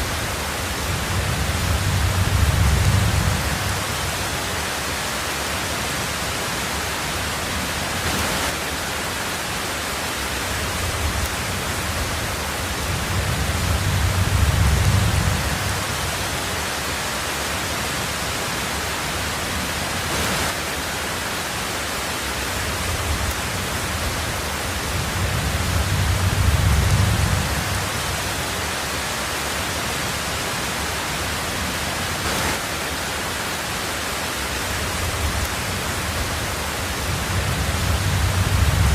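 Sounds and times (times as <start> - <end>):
heavy rain on a tin roof: 0.0 - 38.9
low rolling thunder: 0.1 - 4.3, 10.6 - 16.3, 22.8 - 28.4, 34.9 - 38.9.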